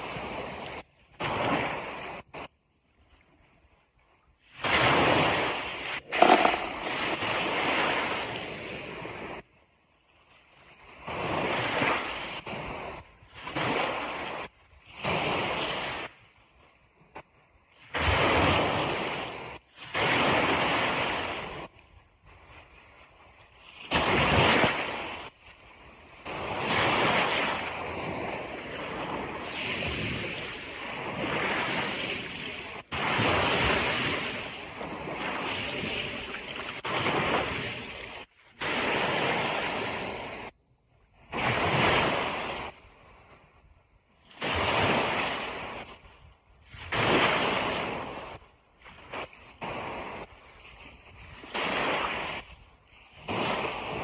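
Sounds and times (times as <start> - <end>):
ocean waves breaking on beach: 6.0 - 7.2.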